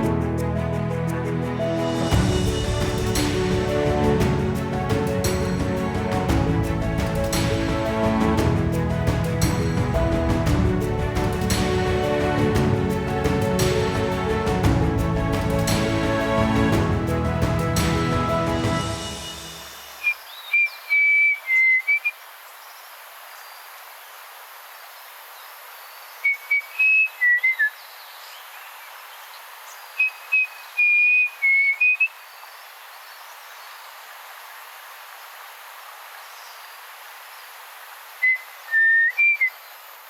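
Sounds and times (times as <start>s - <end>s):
faint forest ambience hiss: 15.2s - 40.0s.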